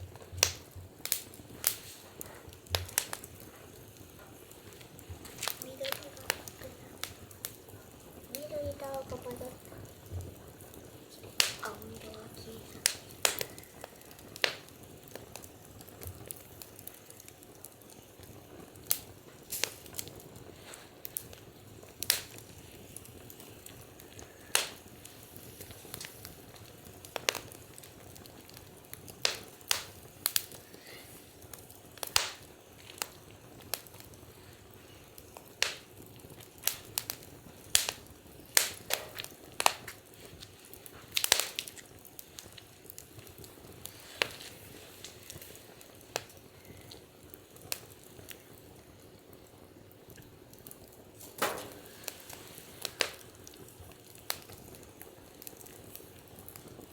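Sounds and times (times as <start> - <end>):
low steady hiss: 0.0 - 56.9
wood fire crackling and popping: 0.0 - 56.9.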